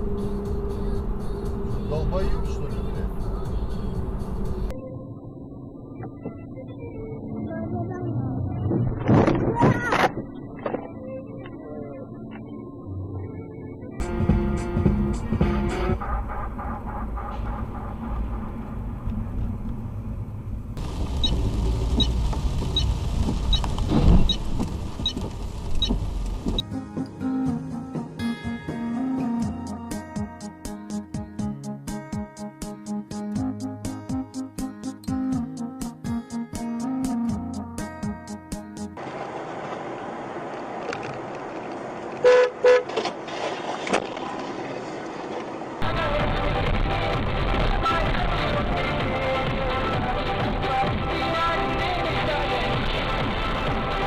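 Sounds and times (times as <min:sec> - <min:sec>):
car road and engine rumble: 0:00.0 - 0:30.4, 0:37.3 - 0:54.0
car horn honks: 0:42.2 - 0:43.0.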